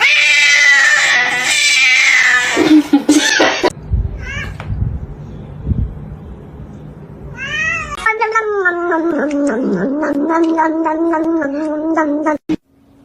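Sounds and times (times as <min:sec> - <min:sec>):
cat yowling: 0:00.0 - 0:02.6.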